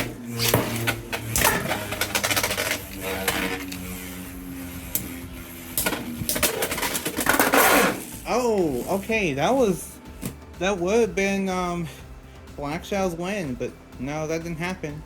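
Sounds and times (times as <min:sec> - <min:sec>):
spinning tops clacking together: 0:00.0 - 0:04.2, 0:04.9 - 0:09.0
spinning tops whirring: 0:00.0 - 0:09.8.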